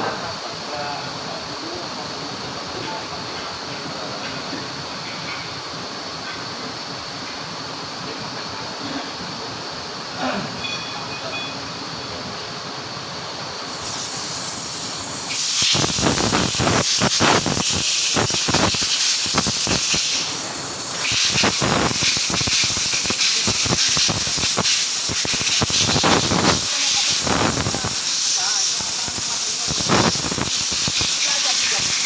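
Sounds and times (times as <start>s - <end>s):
loud hissing with crackle: 13.6s - 32.0s.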